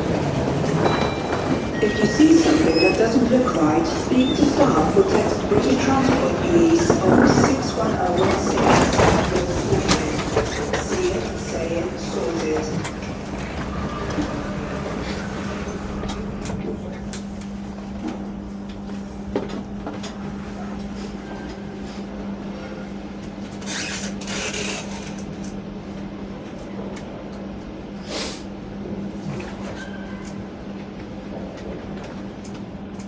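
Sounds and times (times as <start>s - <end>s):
electric train humming: 0.0s - 23.6s.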